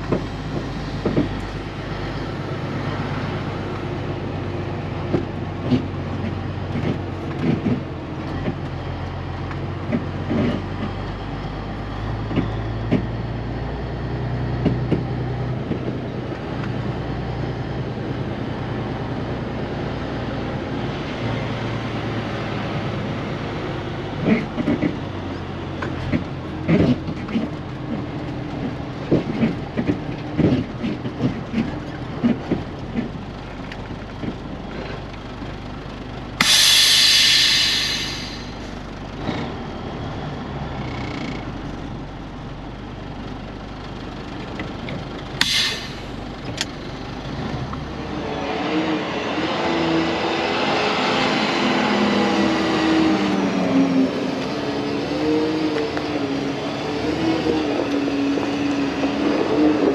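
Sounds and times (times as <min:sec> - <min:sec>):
diesel truck running: 0:00.0 - 0:59.9
road noise: 0:00.0 - 0:59.9
air brakes hissing: 0:36.4 - 0:38.8, 0:45.4 - 0:46.3.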